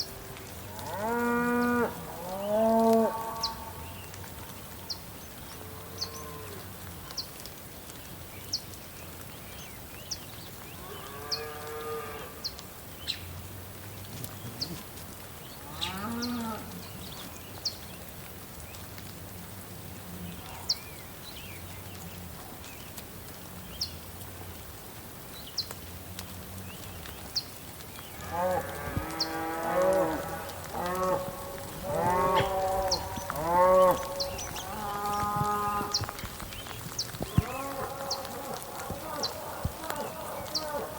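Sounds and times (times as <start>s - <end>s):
cattle mooing: 28.2s - 36.2s, 37.3s - 40.9s.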